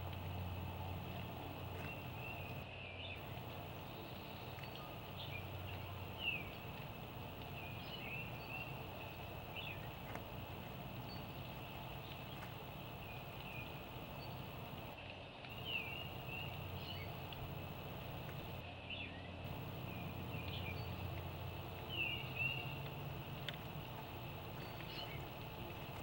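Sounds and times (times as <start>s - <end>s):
birds chirping: 0.0s - 18.6s, 19.4s - 26.0s
low background noise: 0.0s - 26.0s.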